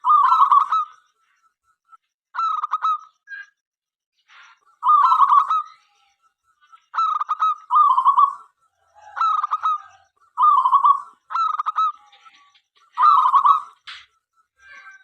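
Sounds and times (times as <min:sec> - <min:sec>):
dove cooing: 0:00.0 - 0:00.9, 0:04.8 - 0:05.7, 0:07.0 - 0:12.0.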